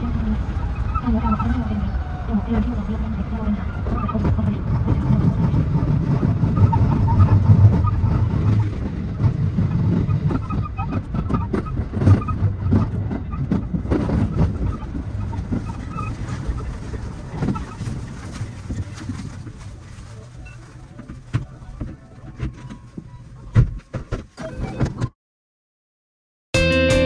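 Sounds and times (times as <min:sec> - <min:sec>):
train wheel clacks: 0:00.0 - 0:19.8
electric train rumble: 0:00.0 - 0:23.9.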